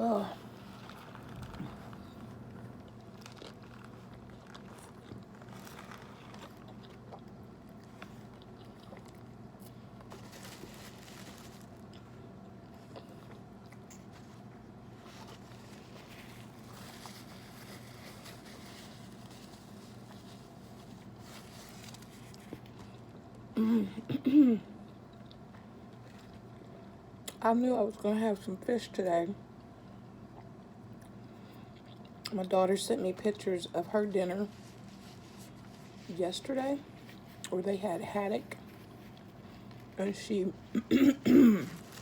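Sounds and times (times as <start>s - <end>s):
steady low hum: 0.0s - 42.0s
person chewing a sandwich: 0.4s - 23.5s, 24.8s - 27.4s, 29.6s - 32.3s, 34.7s - 35.9s, 37.0s - 37.5s, 38.6s - 40.0s.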